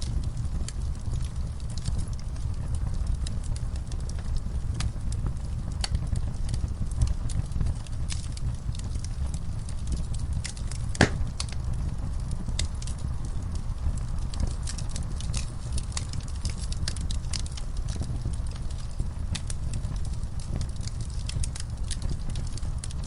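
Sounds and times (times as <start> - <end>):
low steady rumble: 0.0 - 23.0
wood fire crackling: 0.0 - 23.0.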